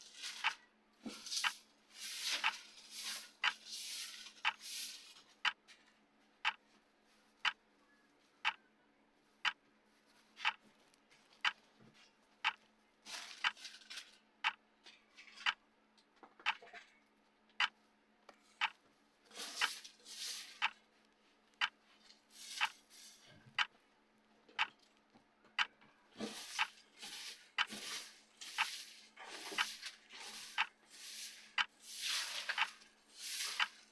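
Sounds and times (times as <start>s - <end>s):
clock ticking: 0.4s - 0.6s, 1.4s - 1.6s, 2.2s - 4.6s, 5.3s - 5.7s, 6.4s - 6.6s, 7.4s - 7.6s, 8.4s - 8.7s, 9.4s - 9.7s, 10.4s - 10.7s, 11.4s - 11.7s, 12.4s - 12.7s, 13.4s - 13.6s, 14.4s - 14.7s, 15.4s - 15.7s, 17.5s - 17.8s, 18.6s - 18.9s, 19.5s - 20.8s, 21.5s - 23.8s, 24.6s - 33.9s.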